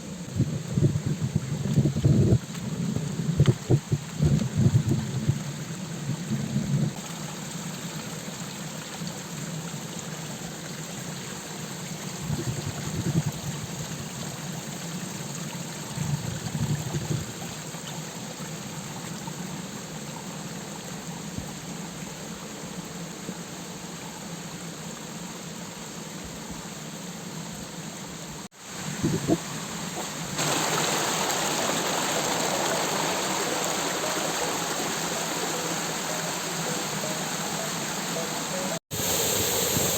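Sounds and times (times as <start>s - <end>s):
river water rushing: 29.5s - 39.9s.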